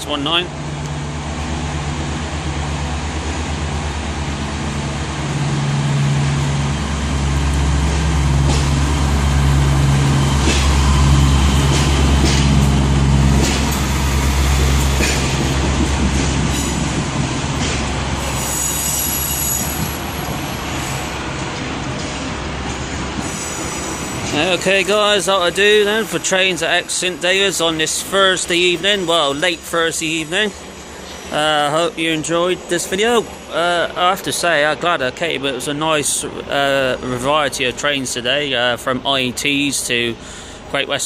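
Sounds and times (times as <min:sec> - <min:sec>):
diesel train engine droning: 0:00.0 - 0:41.0
wheels clicking over rail joints: 0:11.6 - 0:13.9
faint high wheel squeal: 0:18.2 - 0:21.0.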